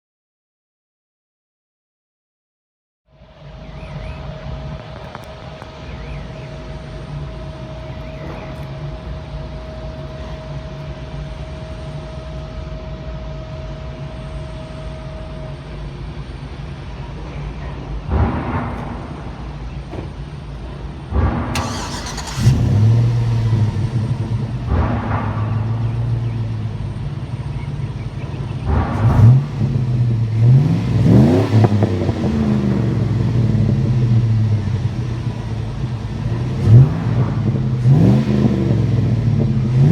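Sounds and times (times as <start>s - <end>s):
engine idling: 3.2s - 39.9s
engine revving: 3.4s - 12.4s, 18.1s - 39.9s.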